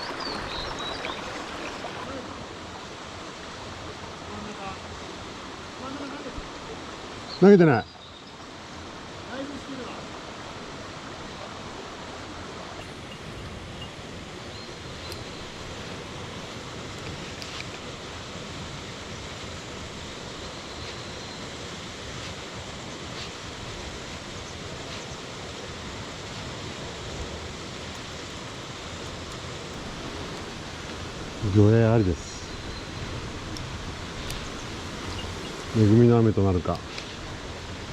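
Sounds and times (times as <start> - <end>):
mountain stream rushing: 0.0 - 37.9
faint clicks: 33.5 - 35.6.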